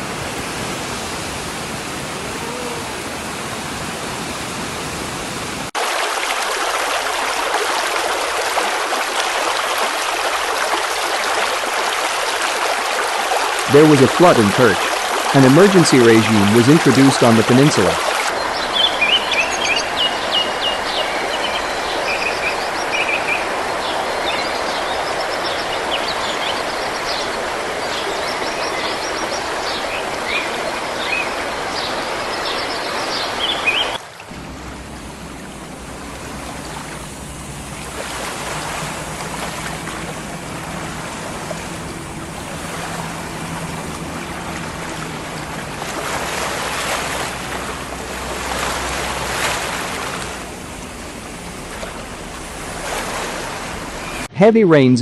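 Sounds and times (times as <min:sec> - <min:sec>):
rushing floodwater: 0:00.0 - 0:55.0.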